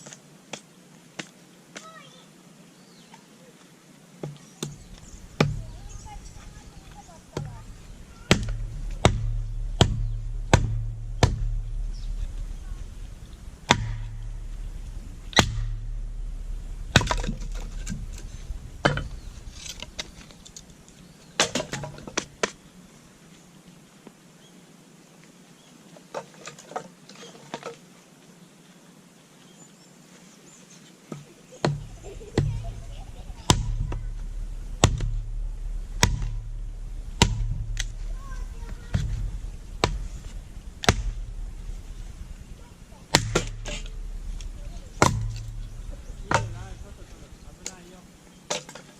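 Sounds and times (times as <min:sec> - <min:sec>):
wood splitting knocks: 0:04.2 - 0:16.0, 0:16.8 - 0:20.6, 0:21.4 - 0:22.6, 0:31.1 - 0:32.7, 0:33.5 - 0:35.4, 0:36.0 - 0:42.2, 0:42.8 - 0:47.8.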